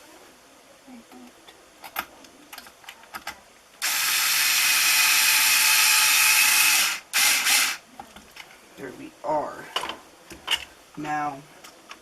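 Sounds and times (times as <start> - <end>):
power drill driving a screw: 3.8 - 7.8.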